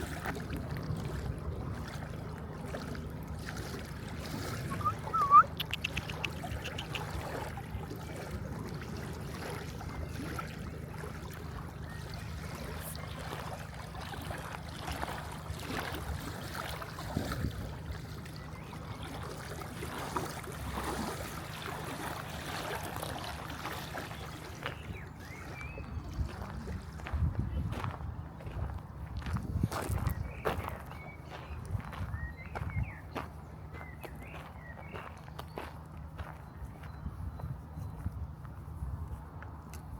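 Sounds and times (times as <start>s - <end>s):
soft water-like wash: 0.0s - 36.9s
rapid high ticks: 5.6s - 7.0s
steady low rumble: 24.5s - 39.7s.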